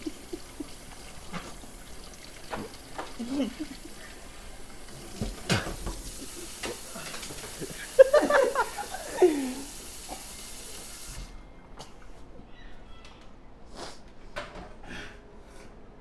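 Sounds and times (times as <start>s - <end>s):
food containers clattering: 4.9s - 8.7s.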